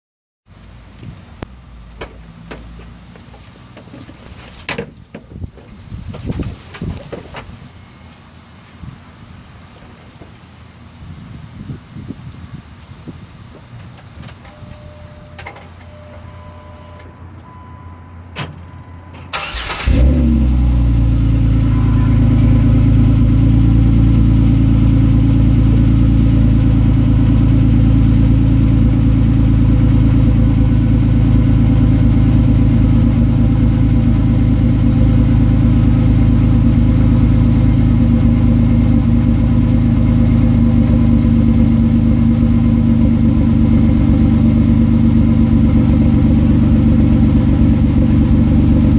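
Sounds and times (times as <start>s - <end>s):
car engine starting and idling: 13.6s - 48.9s.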